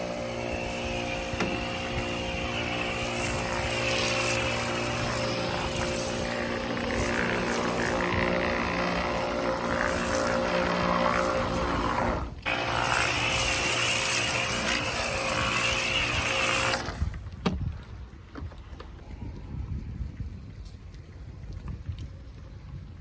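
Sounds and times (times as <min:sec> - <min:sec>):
machine motor running: 0:00.0 - 0:16.9.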